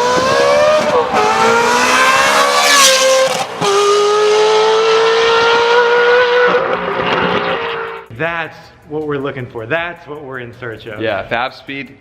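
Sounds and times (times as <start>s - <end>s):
sports car engine revving: 0.0s - 8.1s.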